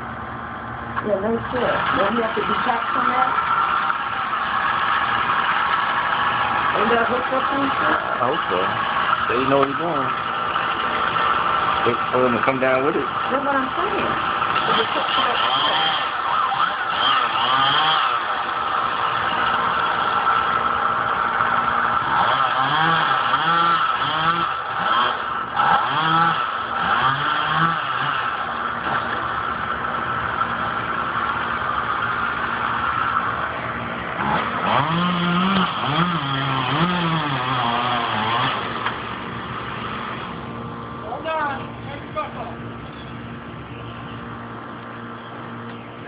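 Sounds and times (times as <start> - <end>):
chainsaw revving: 1.2 - 41.4.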